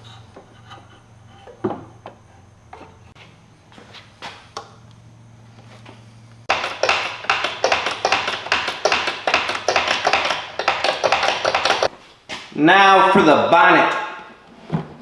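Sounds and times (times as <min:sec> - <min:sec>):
fast sharp taps and knocks: 0:06.5 - 0:11.9.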